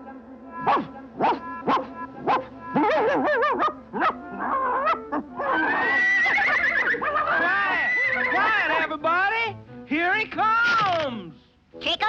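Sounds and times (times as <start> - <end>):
cartoon dog barking and whining: 0.6 - 6.3.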